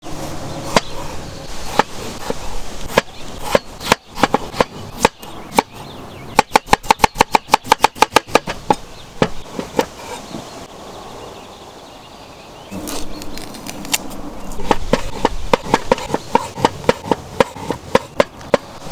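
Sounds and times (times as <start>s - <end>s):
knife chopping on cutting board: 14.6s - 18.7s.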